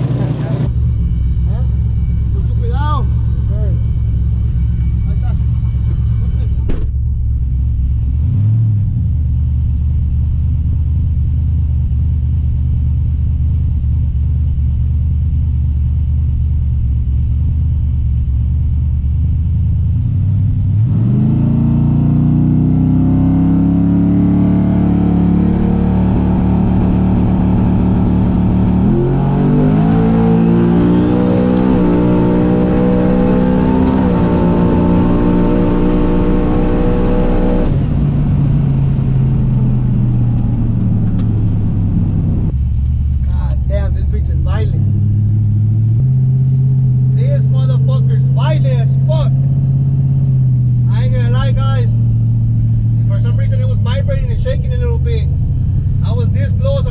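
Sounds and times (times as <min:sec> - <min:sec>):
truck engine revving: 0:00.0 - 0:06.8, 0:19.5 - 0:56.9.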